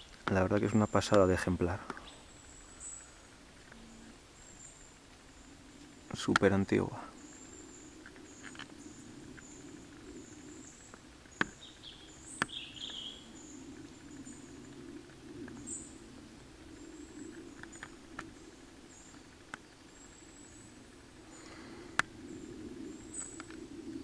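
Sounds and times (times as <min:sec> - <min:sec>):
low steady hum: 0:00.0 - 0:24.0
lower bird call: 0:00.8 - 0:24.0
high bird chirps: 0:07.2 - 0:14.5.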